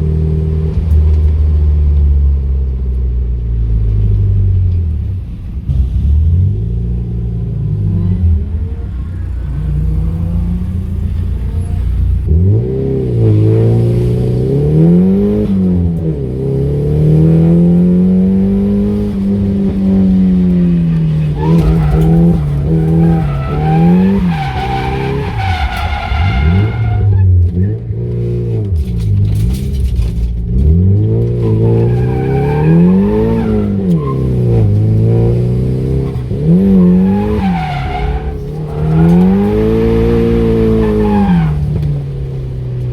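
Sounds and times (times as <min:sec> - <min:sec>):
car engine revving: 0:03.6 - 0:42.9
tyres squealing: 0:18.6 - 0:27.4, 0:31.3 - 0:35.0, 0:36.4 - 0:42.1.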